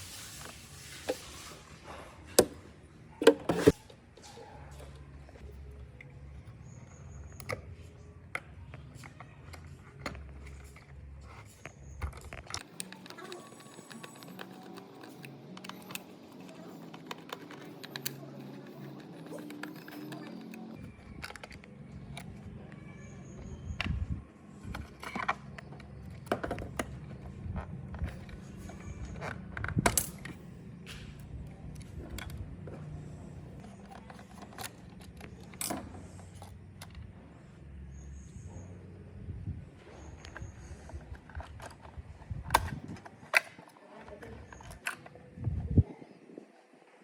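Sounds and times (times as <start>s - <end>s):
small parts clicking and tapping: 5.3s - 37.1s.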